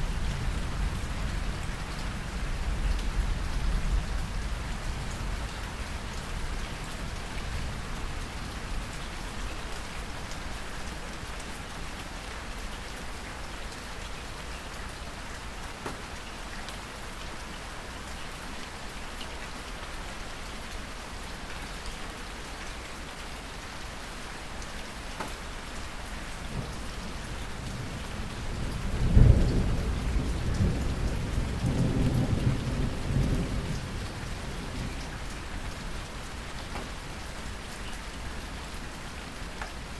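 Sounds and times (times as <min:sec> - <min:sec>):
steady rain: 0:00.0 - 0:39.9
thunderclap and rumble: 0:26.5 - 0:35.1.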